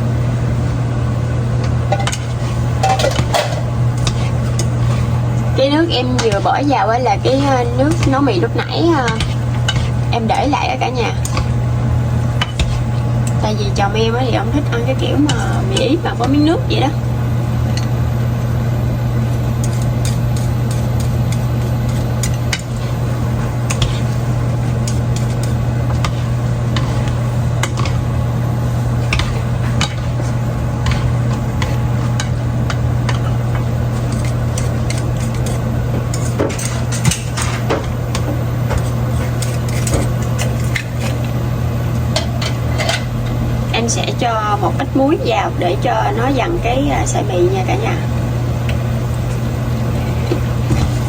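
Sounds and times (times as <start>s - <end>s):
kitchen appliance hum: 0.0s - 51.0s
utensil clinking and scraping pot: 1.9s - 11.6s, 12.4s - 17.0s, 19.4s - 28.3s, 28.9s - 41.4s, 42.1s - 43.4s.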